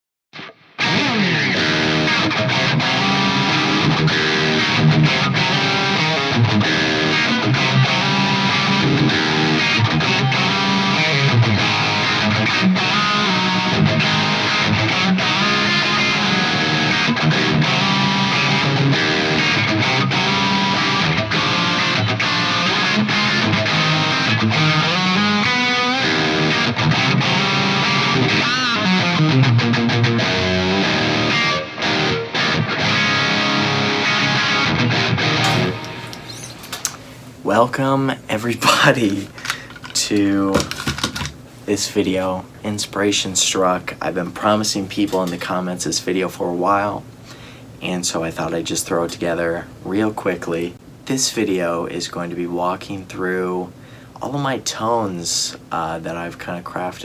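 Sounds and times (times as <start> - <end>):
distorted electric guitar lead: 0.4 - 37.2.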